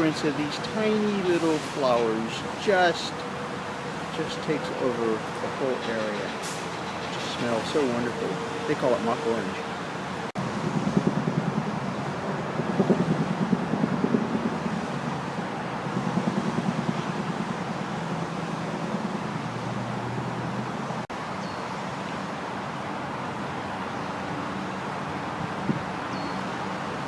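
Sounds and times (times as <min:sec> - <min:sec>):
road traffic hum: 0:00.0 - 0:27.0
low engine drone: 0:07.4 - 0:21.0.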